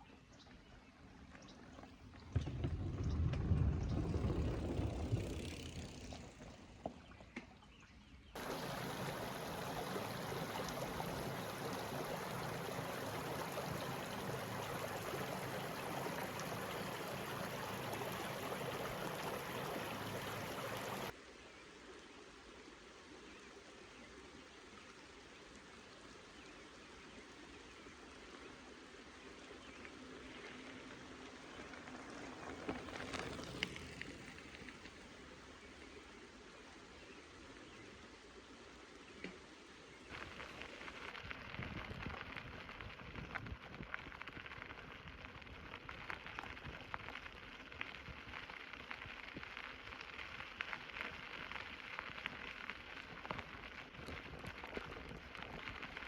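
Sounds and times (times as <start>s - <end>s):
low rumble: 2.2s - 6.4s
stream water rushing: 8.4s - 21.2s.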